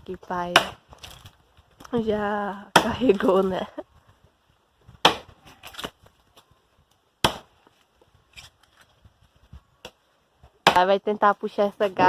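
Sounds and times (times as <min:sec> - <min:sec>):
axe chopping firewood: 0:00.3 - 0:03.4, 0:04.9 - 0:06.1, 0:07.2 - 0:07.8, 0:10.6 - 0:11.0.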